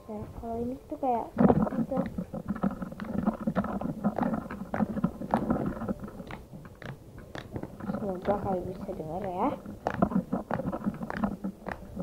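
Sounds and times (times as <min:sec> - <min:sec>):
slime squelching and crackling: 0:01.0 - 0:12.0.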